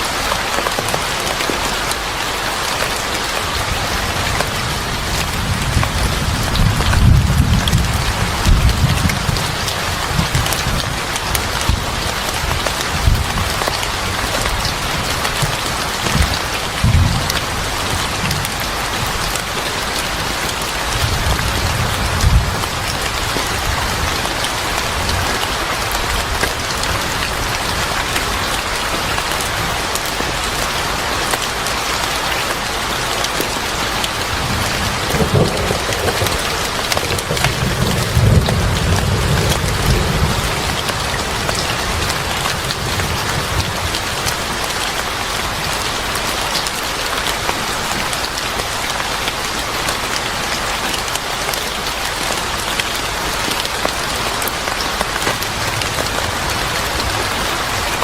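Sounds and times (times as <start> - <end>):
heavy rain falling: 0.0 - 58.0
thunder rolling: 34.4 - 44.0.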